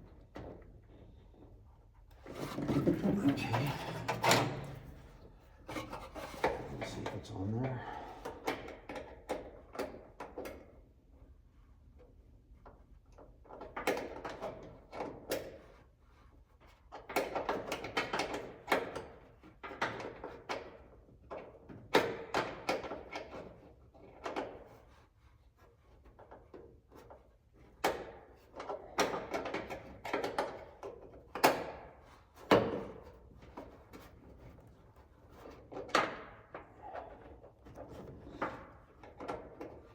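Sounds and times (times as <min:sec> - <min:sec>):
hardware knocking and rattling: 0:02.3 - 0:07.0.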